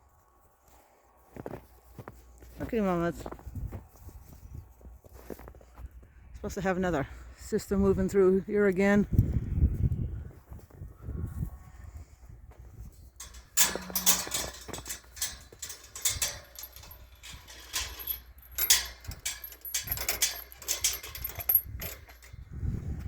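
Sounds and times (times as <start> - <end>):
footsteps crunching in snow: 0.8 - 5.9.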